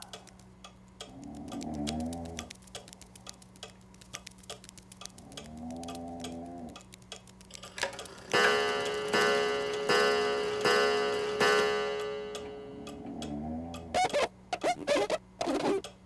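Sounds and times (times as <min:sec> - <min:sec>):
pendulum clock ticking: 0:00.0 - 0:14.1
clock chimes striking: 0:08.4 - 0:13.0.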